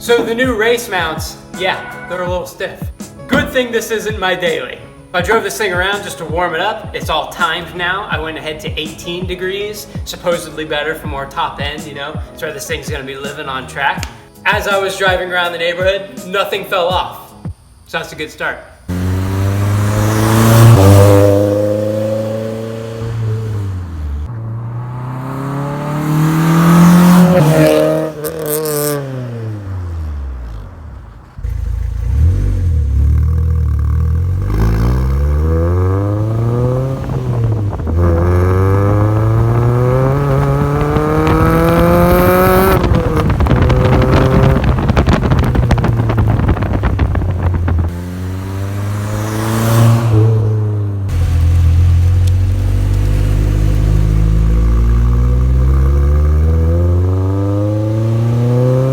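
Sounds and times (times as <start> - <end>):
car engine revving through gears: 18.9 - 58.9.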